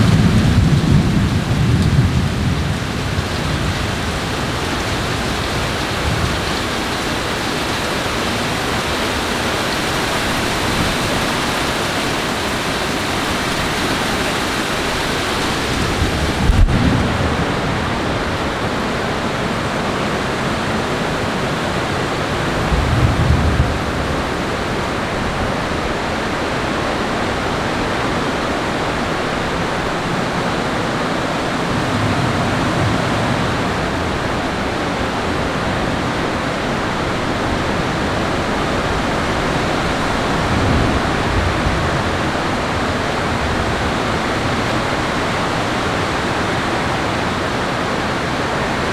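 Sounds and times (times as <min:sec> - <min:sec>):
thunder rumbling: 0:00.0 - 0:19.5, 0:21.2 - 0:26.2, 0:31.3 - 0:46.2
heavy rain: 0:00.0 - 0:48.9.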